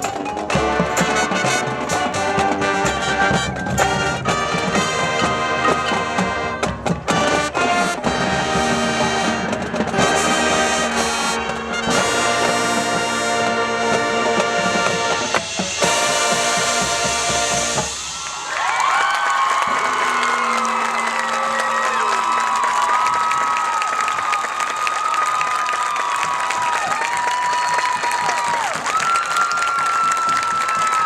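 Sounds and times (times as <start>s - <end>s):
marching band playing: 0.0s - 23.3s
drumline hits: 0.0s - 23.6s, 25.0s - 31.0s
brass section: 0.4s - 22.6s.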